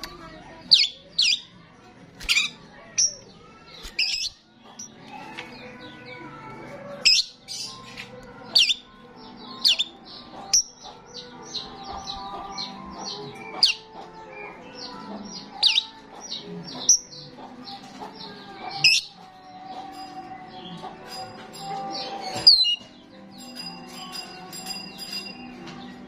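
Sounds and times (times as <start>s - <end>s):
starling chattering chirps: 8.5s - 20.1s.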